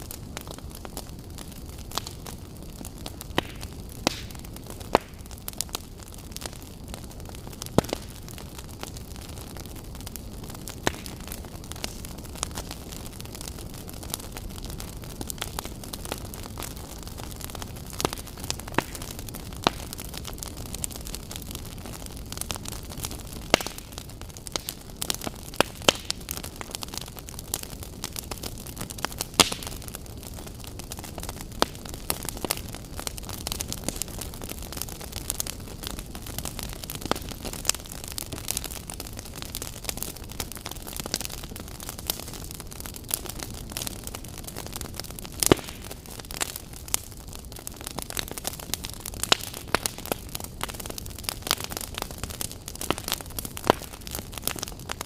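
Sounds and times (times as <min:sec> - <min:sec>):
fire popping: 0:00.0 - 0:55.0
low rumble of burning: 0:00.0 - 0:55.0
wood fire crackling: 0:00.0 - 0:55.0
sharp pops and snaps: 0:03.3 - 0:05.2, 0:10.8 - 0:11.2, 0:23.5 - 0:23.9, 0:29.3 - 0:29.7, 0:45.4 - 0:45.9.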